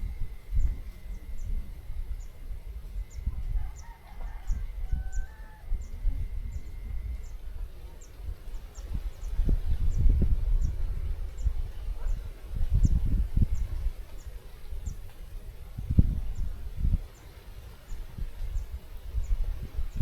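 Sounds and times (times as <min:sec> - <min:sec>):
rooster crowing faintly: 0:03.2 - 0:06.8.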